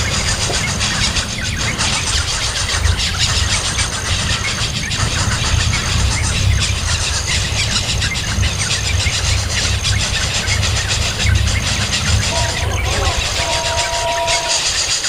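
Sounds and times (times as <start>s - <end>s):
steady low rumble: 0.0s - 15.0s
baby bird squealing: 11.8s - 15.0s.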